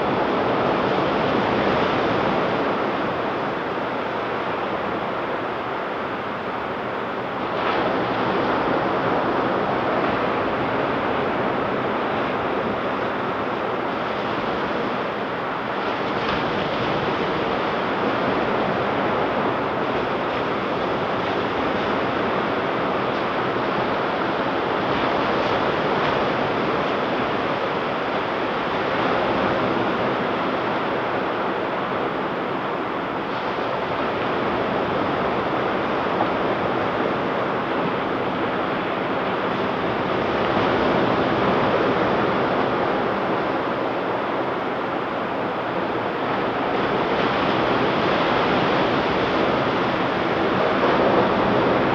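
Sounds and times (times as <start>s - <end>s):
ocean surf breaking on beach: 0.0s - 51.9s.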